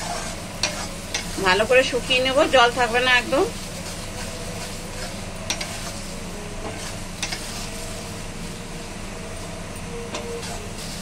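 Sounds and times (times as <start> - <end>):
spatula stirring and scraping: 0.0 - 8.4, 10.2 - 11.0
vegetables sizzling in oil: 0.0 - 11.0
spatula tapping the pan: 5.5 - 5.8.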